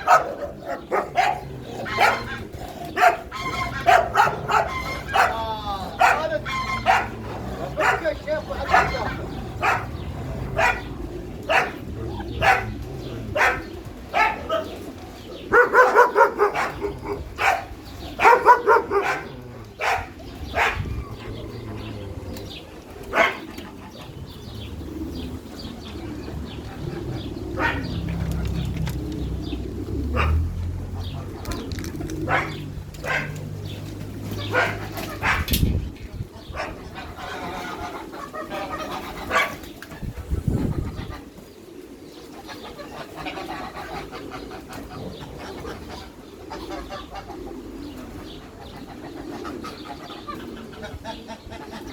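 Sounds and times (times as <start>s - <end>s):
dog barking: 0.0s - 5.4s, 6.0s - 10.0s, 10.6s - 10.9s, 11.5s - 14.7s, 15.5s - 20.9s, 23.1s - 23.5s, 27.6s - 28.0s, 30.1s - 30.4s, 32.2s - 33.4s, 34.4s - 35.5s, 39.3s - 39.6s.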